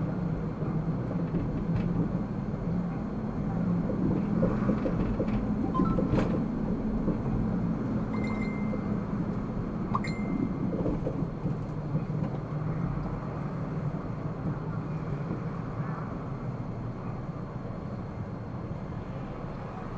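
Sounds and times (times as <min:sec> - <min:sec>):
engine and road rumble: 0:00.0 - 0:19.9
short high beeps: 0:05.7 - 0:06.2, 0:08.1 - 0:09.0, 0:09.9 - 0:10.6.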